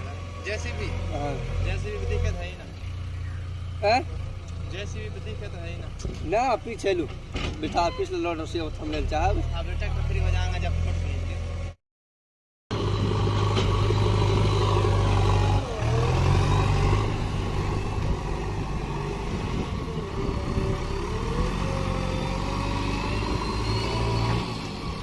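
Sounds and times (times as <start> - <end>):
heavy diesel engine running: 12.7 - 25.0.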